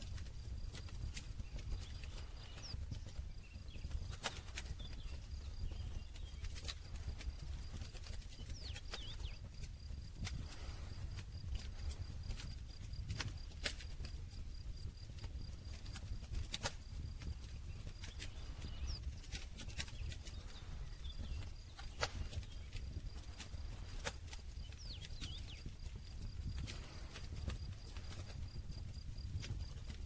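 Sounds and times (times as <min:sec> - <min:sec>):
campfire crackling: 0:00.0 - 0:30.0.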